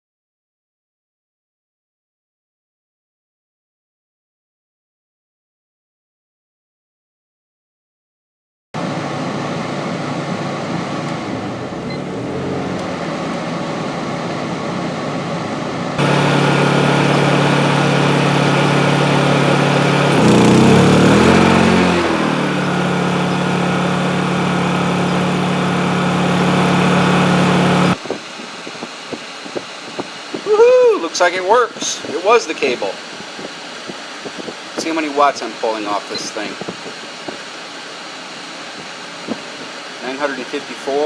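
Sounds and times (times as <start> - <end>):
generator engine running: 8.8 - 41.0.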